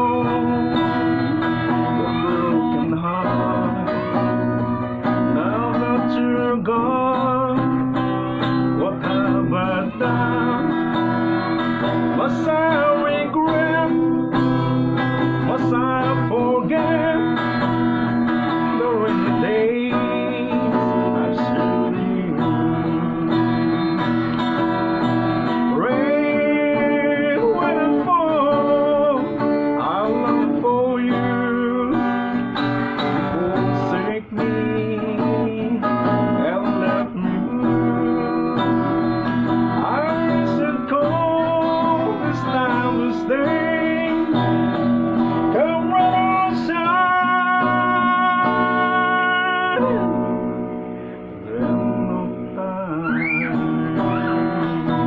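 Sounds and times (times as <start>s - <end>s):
acoustic guitar ballad: 0.0s - 55.0s.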